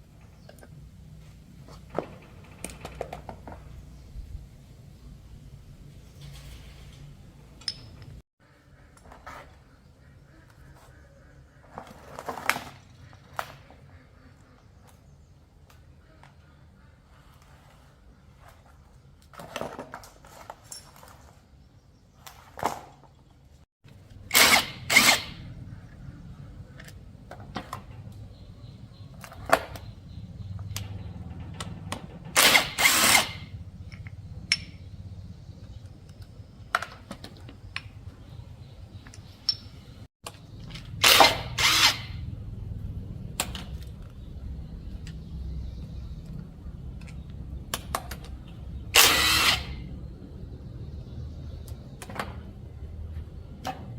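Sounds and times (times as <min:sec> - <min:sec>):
power tool bursts: 0:24.3 - 0:25.4, 0:32.3 - 0:33.5, 0:41.0 - 0:42.2, 0:48.9 - 0:49.8
tool clicks: 0:49.0 - 0:49.8.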